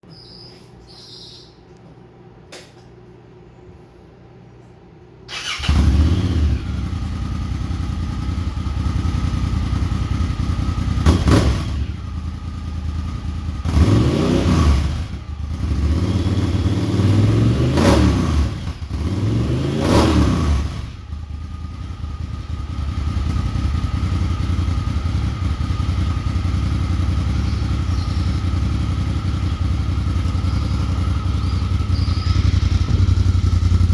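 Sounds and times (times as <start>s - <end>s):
engine starting and revving: 5.3s - 7.5s, 11.0s - 12.0s, 13.6s - 21.0s.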